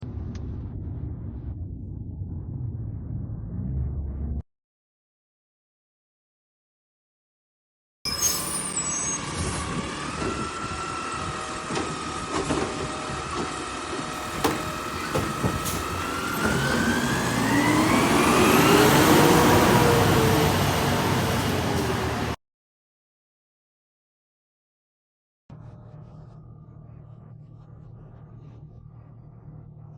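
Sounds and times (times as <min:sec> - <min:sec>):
garbage truck engine whining: 0:08.1 - 0:22.4
sharp knocks: 0:14.2 - 0:17.7.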